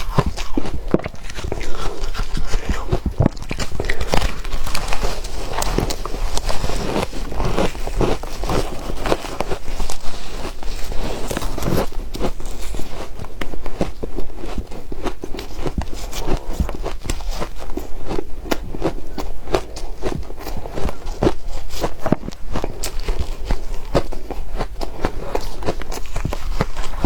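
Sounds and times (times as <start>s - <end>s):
ice being chewed: 0.0s - 27.0s.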